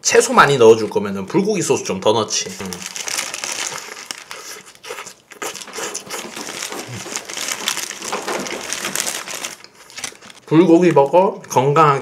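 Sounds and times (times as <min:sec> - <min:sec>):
paper wrapper crinkling: 0:02.3 - 0:11.2
biting and chewing: 0:02.7 - 0:10.5.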